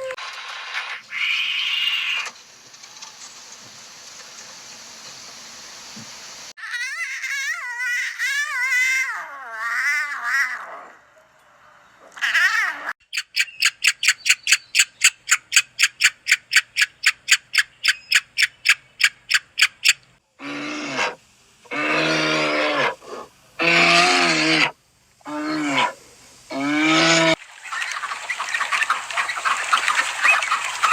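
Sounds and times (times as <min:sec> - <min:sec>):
wavering animal call: 0:06.6 - 0:11.0, 0:12.2 - 0:27.4
rapid sharp animal calls: 0:12.2 - 0:24.7
lower animal calls: 0:17.8 - 0:27.4.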